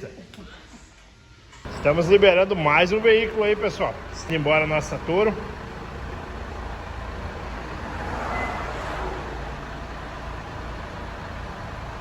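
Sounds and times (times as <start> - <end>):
pickup truck driving away: 1.7 - 12.0.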